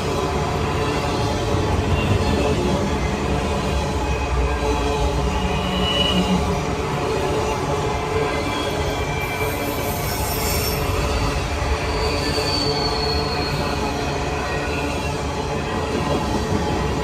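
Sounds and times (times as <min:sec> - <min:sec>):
train wheels rumbling on rail: 0:00.0 - 0:17.0
high-pitched wheel squeal: 0:05.3 - 0:06.4, 0:08.3 - 0:15.2.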